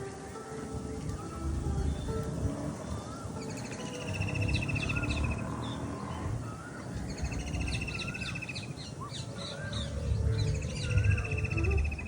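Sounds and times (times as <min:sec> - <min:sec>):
birds calling: 0:00.0 - 0:12.0
fast bird trill: 0:03.2 - 0:12.0.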